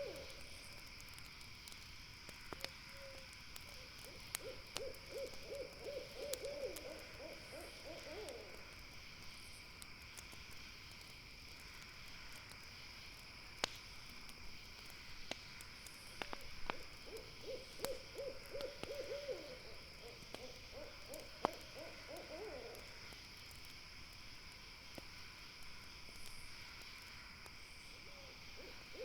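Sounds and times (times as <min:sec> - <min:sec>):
owl hooting: 0:00.0 - 0:00.4, 0:03.8 - 0:08.6, 0:16.7 - 0:22.9, 0:28.1 - 0:29.0
campfire crackles: 0:00.0 - 0:29.0.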